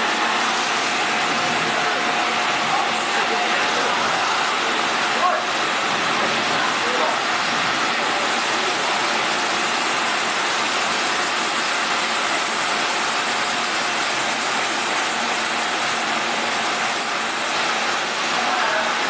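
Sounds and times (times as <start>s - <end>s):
laser cutting machine hiss: 0.0s - 19.0s.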